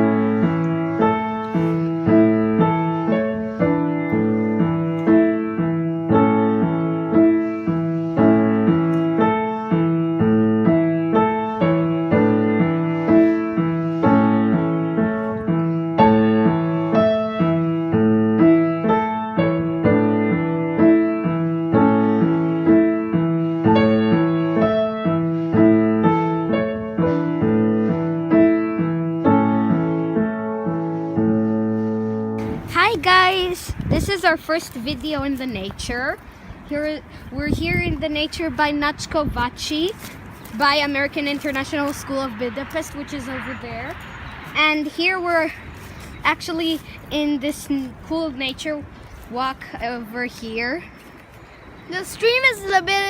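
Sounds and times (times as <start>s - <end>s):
piano playing sustained notes: 0.0s - 33.1s.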